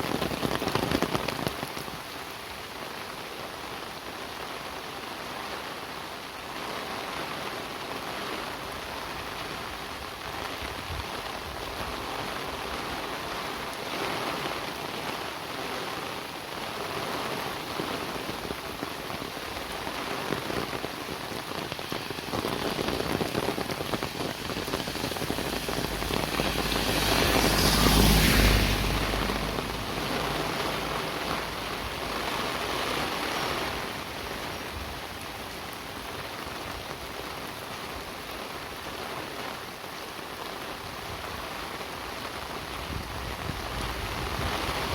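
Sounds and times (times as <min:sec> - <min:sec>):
steady rain falling: 0:00.0 - 0:44.9
vehicle passing: 0:24.0 - 0:32.4.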